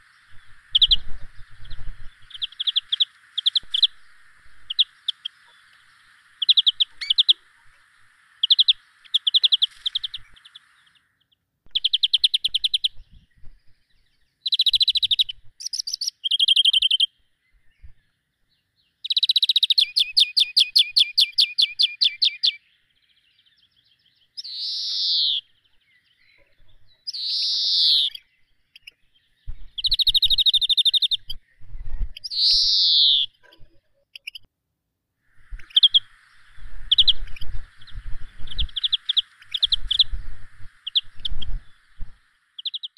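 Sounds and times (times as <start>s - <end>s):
birds trilling chirps: 0.0s - 34.5s, 35.3s - 42.9s
bird calls falling in pitch: 24.4s - 25.5s, 27.1s - 28.2s, 32.3s - 33.4s.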